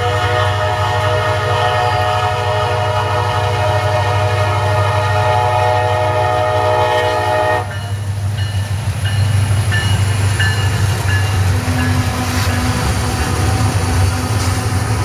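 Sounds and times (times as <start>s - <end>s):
train horn sounding a chord: 0.0s - 7.8s
low rumble of passing train: 0.0s - 15.0s.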